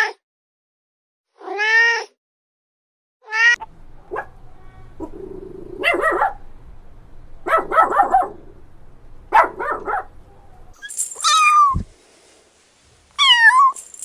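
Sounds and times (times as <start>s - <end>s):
puppy barking: 4.0s - 6.4s, 7.4s - 8.5s, 9.3s - 11.7s
puppy growling: 5.0s - 6.2s.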